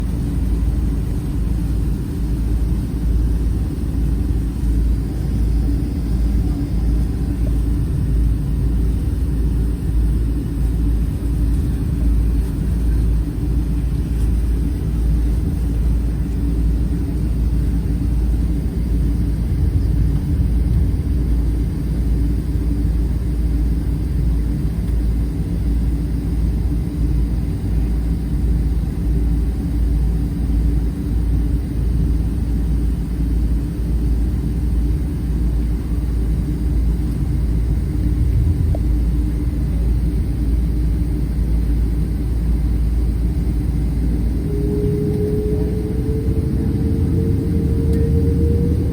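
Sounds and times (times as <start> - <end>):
airliner cabin engine rumble: 0.0 - 48.9
faint steady hum tones: 0.0 - 48.9.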